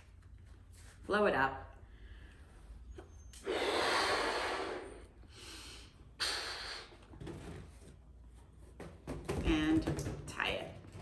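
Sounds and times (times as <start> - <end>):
person blowing up a balloon: 3.3 - 7.2.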